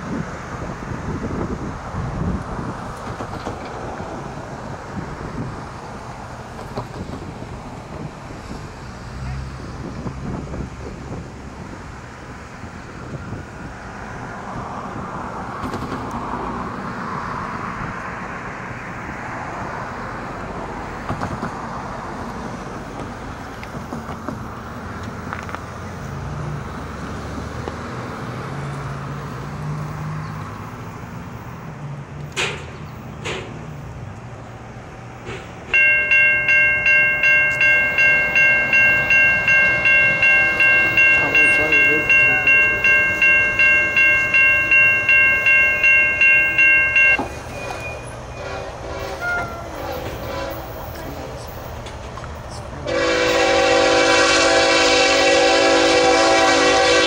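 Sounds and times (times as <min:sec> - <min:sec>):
diesel locomotive rumble: 0:00.0 - 0:57.0
ringing warning signal: 0:35.8 - 0:48.0.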